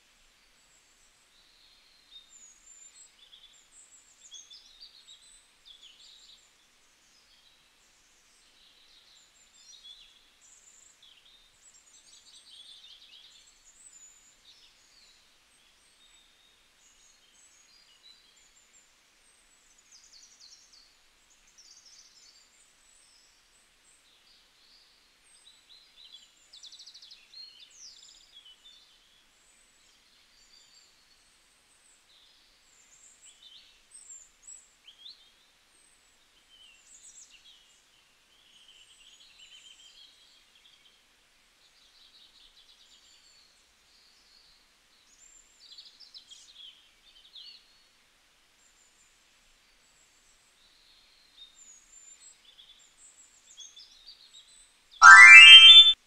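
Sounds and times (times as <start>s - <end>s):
faint steady hiss: 0.0s - 28.5s.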